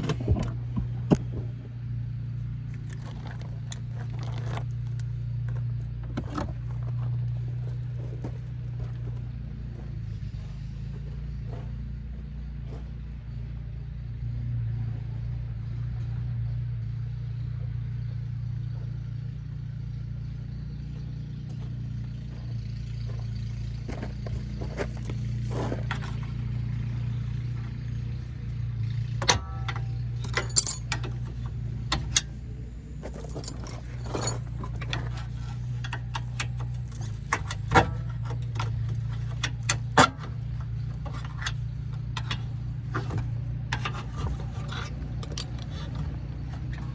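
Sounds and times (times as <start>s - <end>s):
metal tools clinking: 29.5s - 31.2s, 33.0s - 35.4s, 44.7s - 46.0s.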